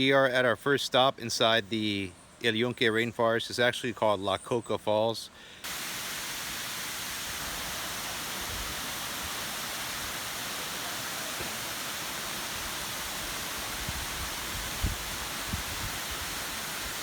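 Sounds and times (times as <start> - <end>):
waterfall rushing: 5.7 - 17.0.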